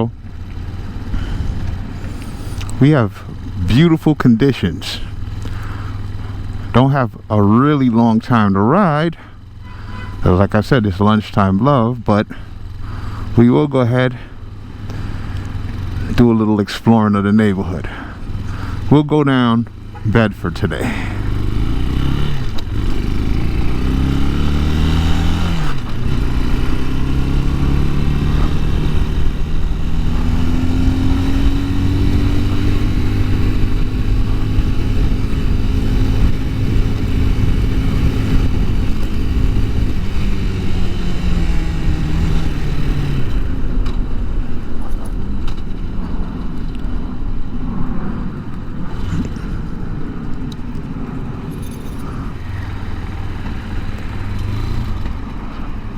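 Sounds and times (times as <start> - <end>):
motorcycle engine pulling away: 0.1 - 3.9, 5.1 - 6.7, 12.4 - 13.4, 14.3 - 16.2, 18.0 - 18.9, 20.8 - 47.3, 48.3 - 55.9.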